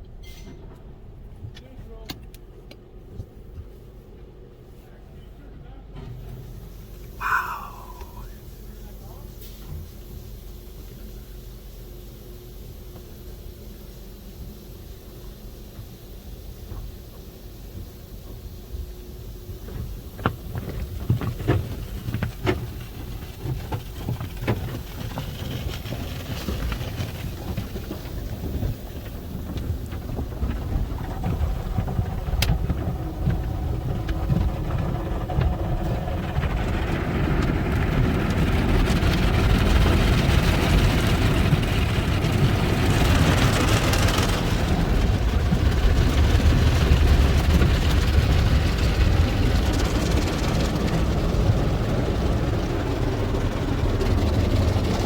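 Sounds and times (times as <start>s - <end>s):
car wash spraying water: 6.2s - 55.0s
low rumble: 25.3s - 55.0s.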